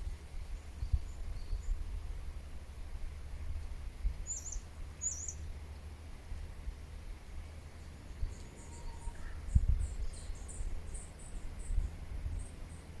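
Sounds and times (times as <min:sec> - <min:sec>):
songbird chirping: 0:04.0 - 0:06.0, 0:07.5 - 0:13.0.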